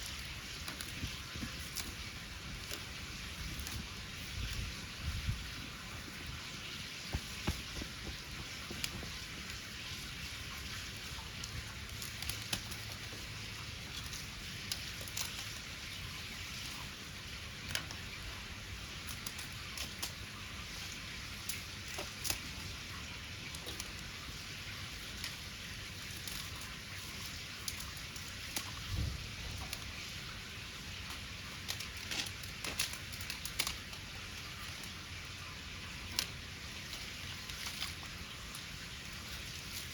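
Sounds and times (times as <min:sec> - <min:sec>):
bonfire crackling and popping: 0:00.0 - 0:39.9.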